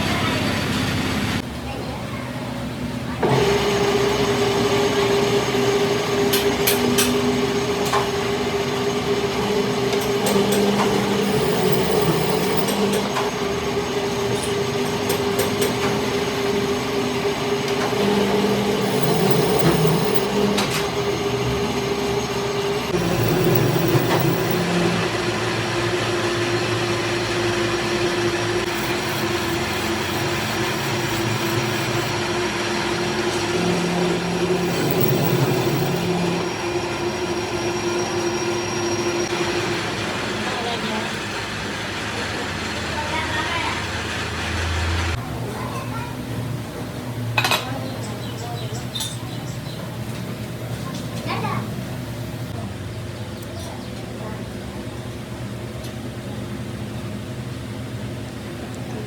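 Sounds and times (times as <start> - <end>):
workshop machine humming: 3.3 - 39.8
sharp clicks: 28.6 - 32.1.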